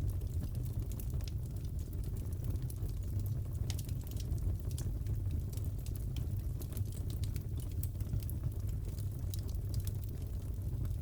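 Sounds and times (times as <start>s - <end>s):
fire popping and crackling: 0.0s - 11.0s.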